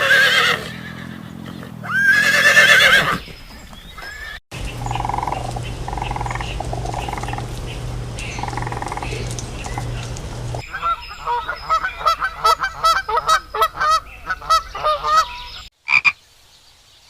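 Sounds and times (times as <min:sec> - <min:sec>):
horse whinnying: 0:00.0 - 0:03.3
waterfowl honking: 0:04.0 - 0:16.2
steady low hum: 0:04.6 - 0:10.6.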